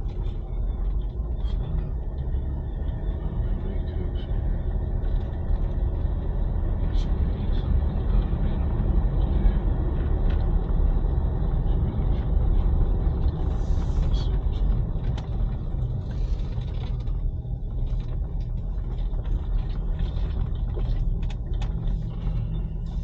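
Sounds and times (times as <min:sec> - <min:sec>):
vehicle engine and road rumble: 0:00.0 - 0:23.0.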